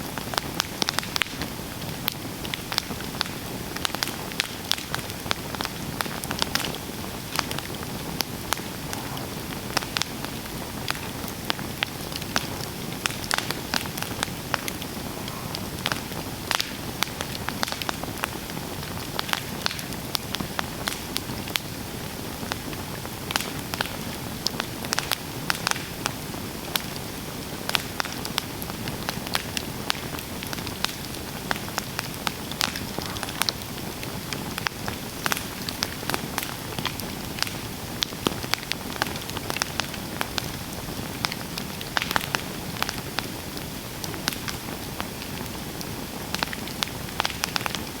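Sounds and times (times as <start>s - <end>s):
campfire crackling and popping: 0.0s - 48.0s
soft hiss of fire: 0.0s - 48.0s.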